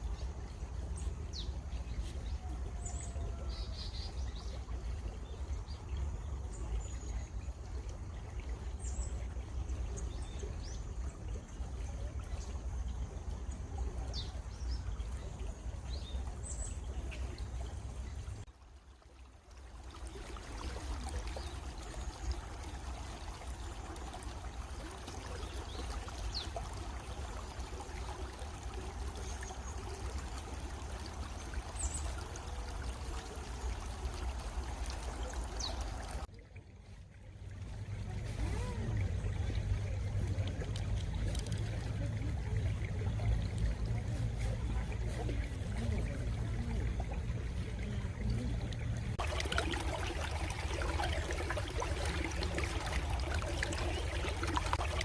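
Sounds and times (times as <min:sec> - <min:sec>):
stream flowing and trickling: 0:00.0 - 0:55.0.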